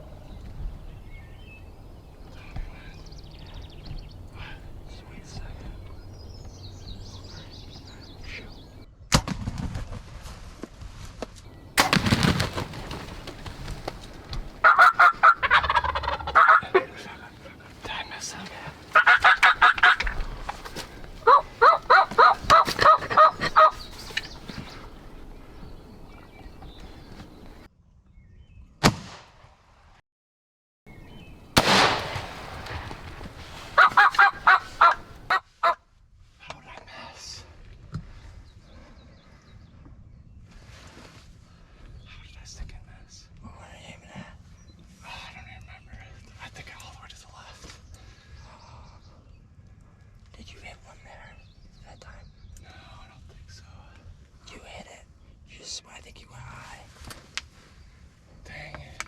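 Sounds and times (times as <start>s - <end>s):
turkey gobbling: 14.6s - 17.0s, 18.9s - 20.6s, 21.2s - 23.9s, 33.5s - 35.8s
loud bursts: 31.6s - 33.2s
loud echoing bang: 31.6s - 33.3s.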